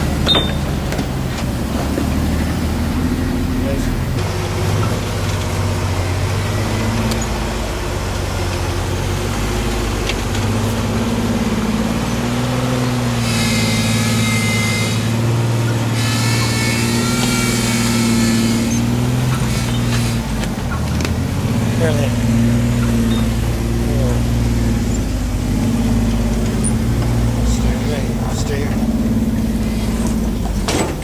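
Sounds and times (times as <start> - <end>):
truck engine at low revs: 0.0 - 31.0
high-pitched whine: 10.7 - 20.2.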